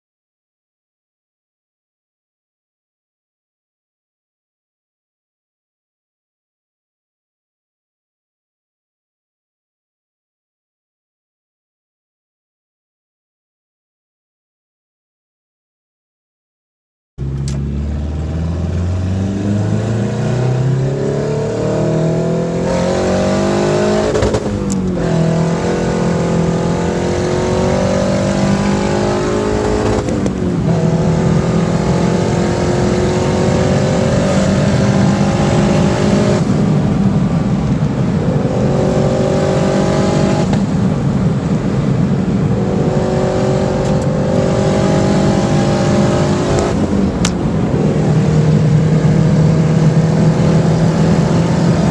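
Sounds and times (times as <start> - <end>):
car engine accelerating through gears: 17.2 - 51.9.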